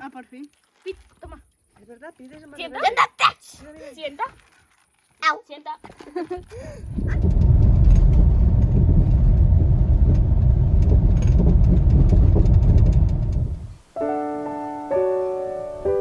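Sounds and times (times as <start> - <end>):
loud low rumble: 6.6 - 13.8
piano music: 13.4 - 16.0.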